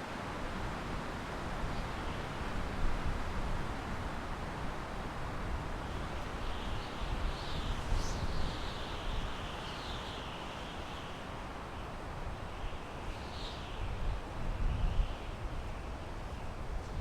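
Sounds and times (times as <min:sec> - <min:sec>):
wind rushing through pine trees: 0:00.0 - 0:17.0.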